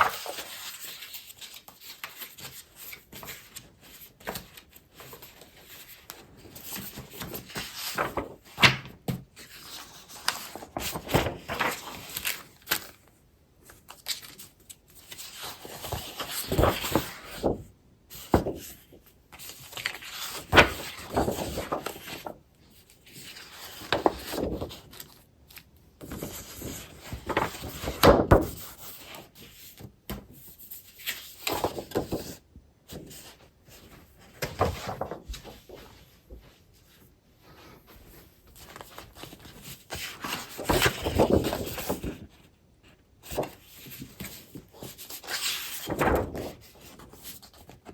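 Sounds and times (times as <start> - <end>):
paper rustling and crinkling: 0.0 - 47.9.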